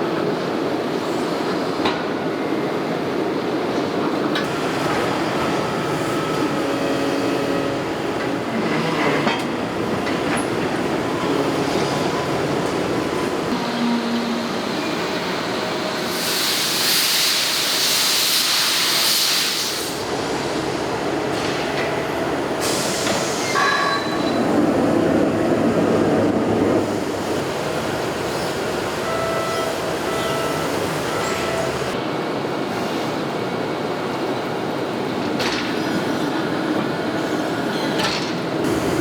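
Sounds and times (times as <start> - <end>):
factory machinery running: 0.0 - 39.0
loud hiss: 15.8 - 20.8, 22.5 - 23.6.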